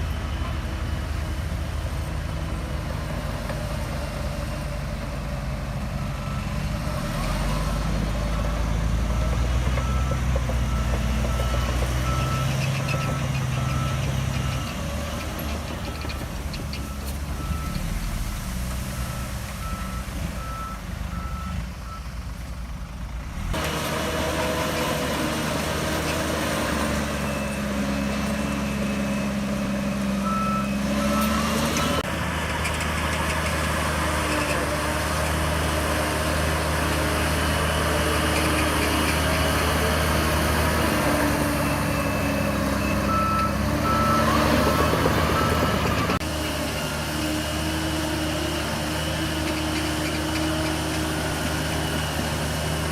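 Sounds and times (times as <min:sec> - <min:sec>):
bulldozer diesel engine working: 0:00.0 - 0:52.9
reverse alarm beeping: 0:41.6 - 0:46.2.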